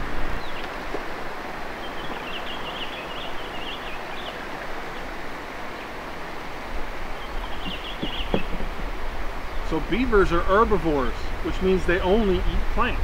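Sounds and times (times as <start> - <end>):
stream water rushing: 0.0 - 13.0
wind: 0.0 - 13.0
small bird twittering: 1.8 - 5.1, 7.2 - 8.6.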